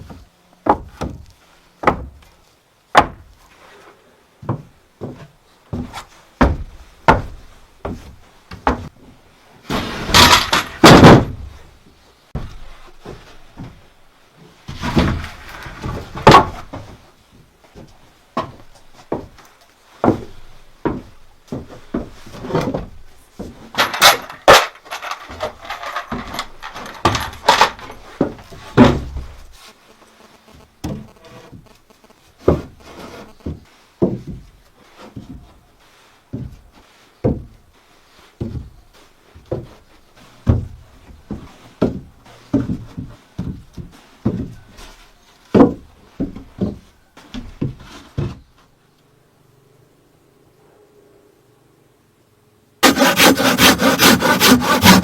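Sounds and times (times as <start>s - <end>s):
wooden knocks and thuds: 0.0s - 3.3s, 4.4s - 9.1s, 9.7s - 11.6s, 12.4s - 13.8s, 14.7s - 19.4s, 20.0s - 29.5s, 32.4s - 34.5s, 37.2s - 37.6s, 40.4s - 44.6s, 45.5s - 48.5s, 52.8s - 55.0s
rubbing on timber: 23.8s - 35.7s, 52.8s - 55.0s.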